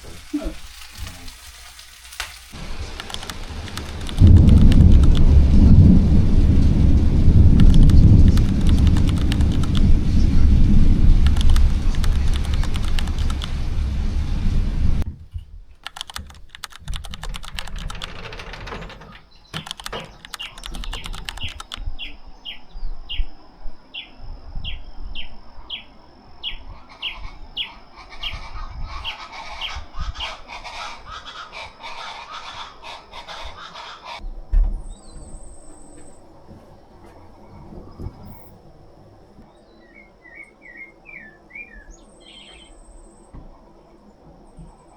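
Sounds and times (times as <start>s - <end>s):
rustling clicks: 0.1s - 21.8s.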